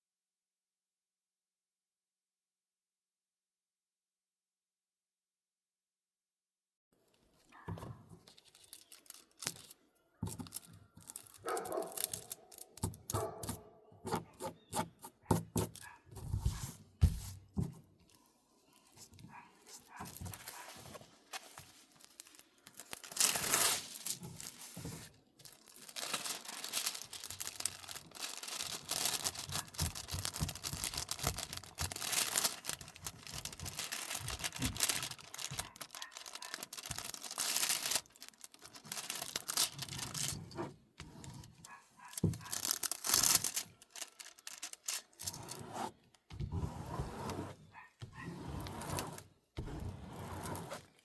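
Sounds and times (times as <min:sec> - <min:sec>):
plastic packaging crinkling and tearing: 0:08.1 - 0:13.6, 0:18.7 - 0:40.6, 0:41.2 - 0:46.2.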